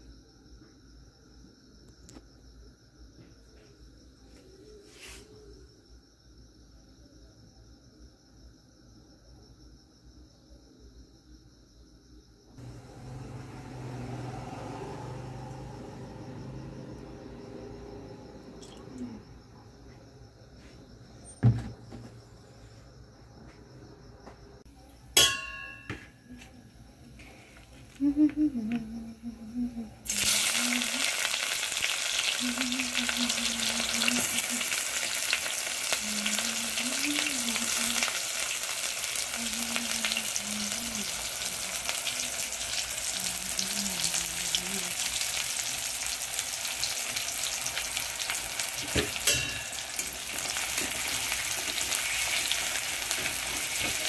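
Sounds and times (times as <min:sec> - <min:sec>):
ringing metallic clink: 0:25.2 - 0:26.2, 0:49.2 - 0:50.0
onions sizzling in hot oil: 0:30.0 - 0:54.0.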